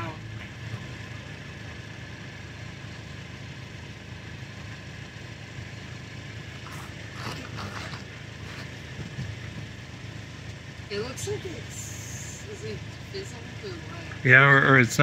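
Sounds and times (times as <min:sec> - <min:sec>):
car engine humming: 0:00.0 - 0:15.0
rustling: 0:06.6 - 0:09.6.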